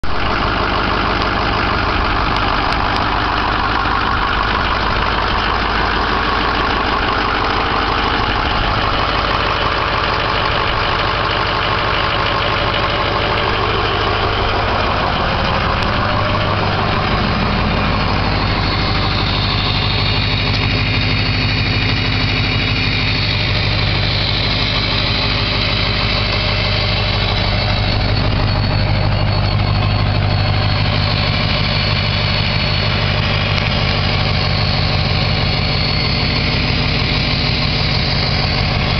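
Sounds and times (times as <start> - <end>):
diesel engine idling: 0.0 - 38.9
turbo whistle: 12.4 - 38.9.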